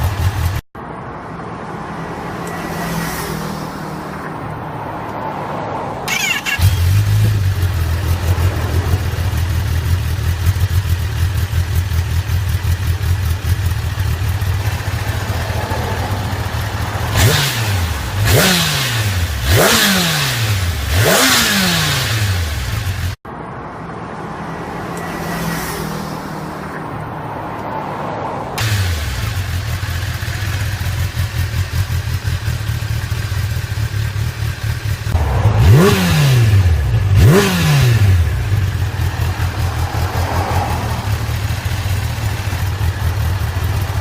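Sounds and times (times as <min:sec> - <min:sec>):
motorcycle engine idling: 0:00.0 - 0:00.6, 0:06.1 - 0:18.5, 0:28.6 - 0:36.0, 0:38.2 - 0:44.0
motorcycle engine revving: 0:00.0 - 0:00.6, 0:06.0 - 0:23.2, 0:28.6 - 0:44.0.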